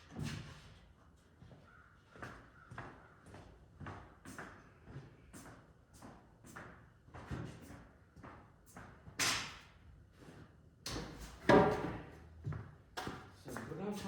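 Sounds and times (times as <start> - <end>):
lumber knocks and scrapes: 11.4 - 12.1.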